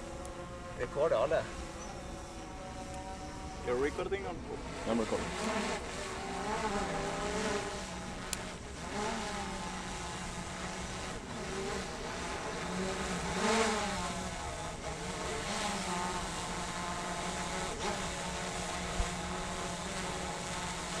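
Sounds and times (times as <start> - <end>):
motor running: 0.0 - 21.0.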